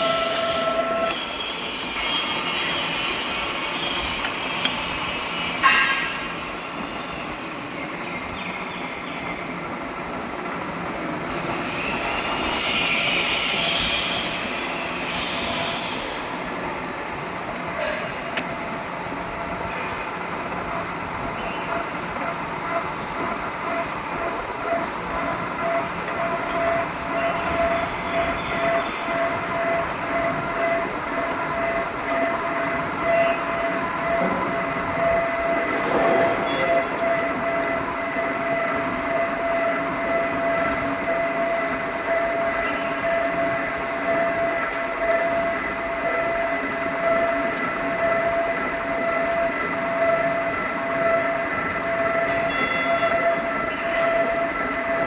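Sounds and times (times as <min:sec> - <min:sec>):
drilling machine grinding steel: 0:00.0 - 0:06.9, 0:11.3 - 0:16.1, 0:25.7 - 0:55.0.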